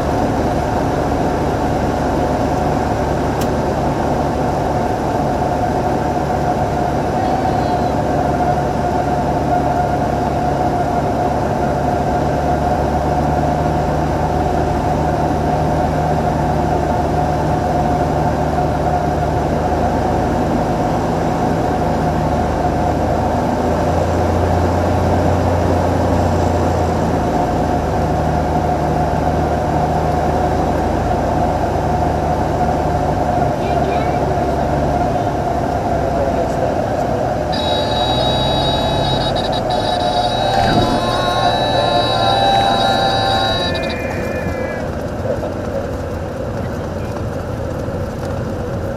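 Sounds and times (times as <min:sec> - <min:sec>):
airplane engine droning: 0:36.4 - 0:48.2.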